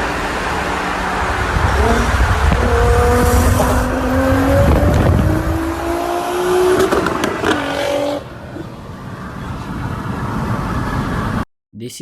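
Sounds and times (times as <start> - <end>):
car engine accelerating hard: 0.0 - 8.6
road and wind noise: 0.0 - 11.4.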